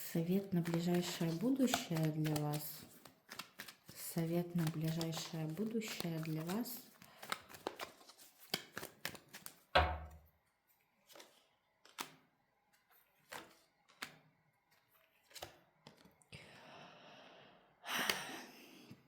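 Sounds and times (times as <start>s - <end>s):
cards shuffling rustle: 0.1s - 9.7s, 11.0s - 16.2s
cards clicking and tapping: 0.2s - 10.0s, 11.1s - 16.2s
thud on table: 9.8s - 10.2s.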